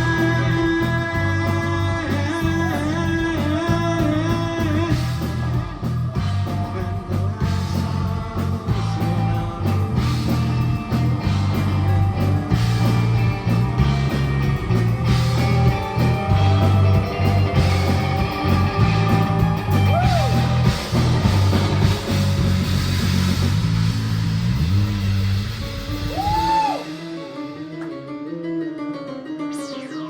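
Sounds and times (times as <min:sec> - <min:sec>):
lead vocal line: 0:00.0 - 0:11.1
bass and drums: 0:00.0 - 0:27.7
electric guitar: 0:00.0 - 0:30.0.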